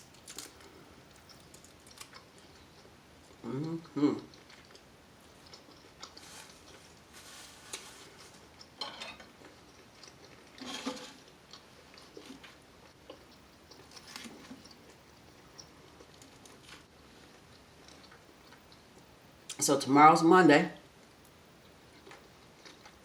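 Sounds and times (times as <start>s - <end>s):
crunchy bites: 0.0s - 2.6s
chewing and mouth sounds: 0.1s - 7.0s, 9.4s - 10.6s, 11.3s - 19.1s, 21.0s - 23.0s.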